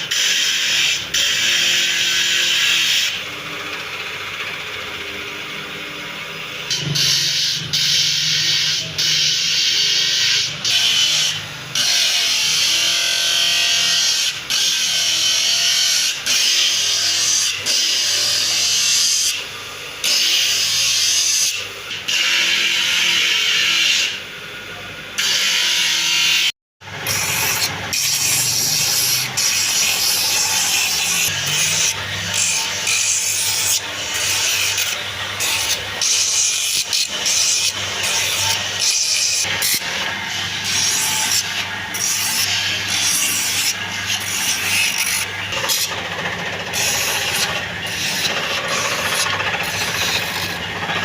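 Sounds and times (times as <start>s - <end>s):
tool scraping wood: 27.0s - 51.0s.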